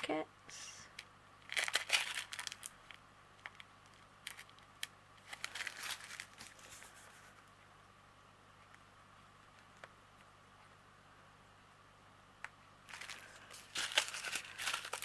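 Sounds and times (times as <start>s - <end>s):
plastic packets crinkling: 1.4s - 6.9s, 12.9s - 15.0s.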